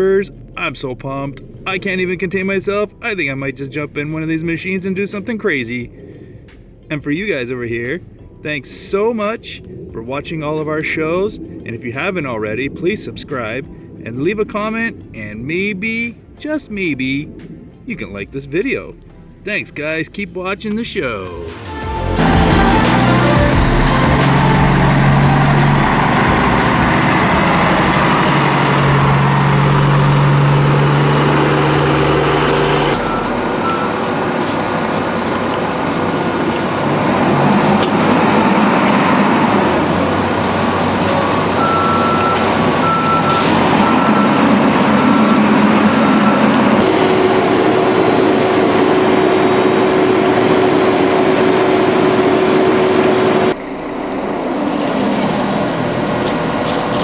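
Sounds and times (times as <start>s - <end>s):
truck engine running: 21.2s - 57.0s
short reversing beeps: 24.1s - 34.2s, 41.2s - 46.6s.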